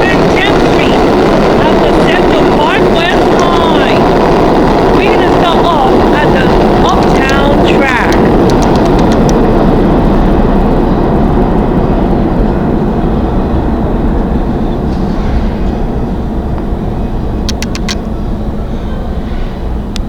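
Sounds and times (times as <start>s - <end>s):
subway train rumble: 0.0s - 20.0s
sharp clicks: 6.8s - 9.5s, 17.4s - 18.0s.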